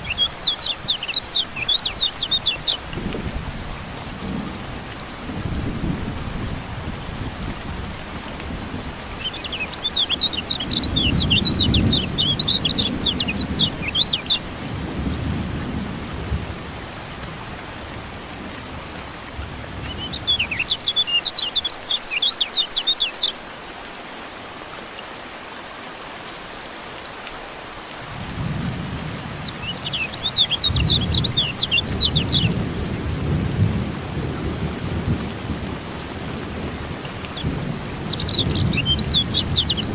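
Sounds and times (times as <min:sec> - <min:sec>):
bird chirping: 0:00.0 - 0:02.8, 0:08.9 - 0:14.4, 0:19.9 - 0:23.4, 0:28.6 - 0:32.6, 0:37.0 - 0:39.9
steady rain: 0:00.0 - 0:39.9
rolling thunder: 0:10.6 - 0:16.6.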